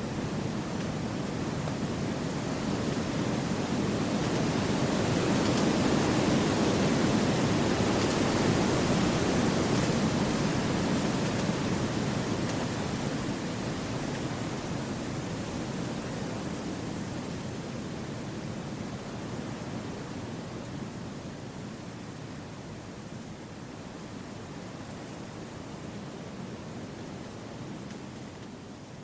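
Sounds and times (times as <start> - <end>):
wind blowing through trees: 0.0 - 20.9.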